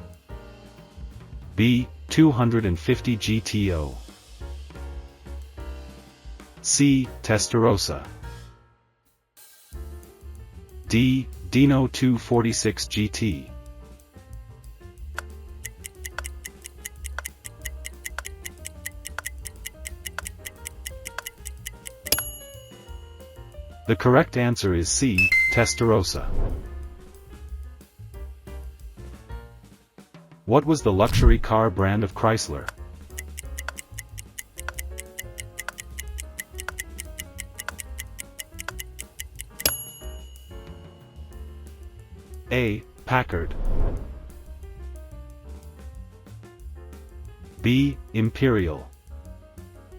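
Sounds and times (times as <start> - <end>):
countdown clock ticking: 15.2 - 23.0, 25.1 - 26.2, 32.6 - 40.7.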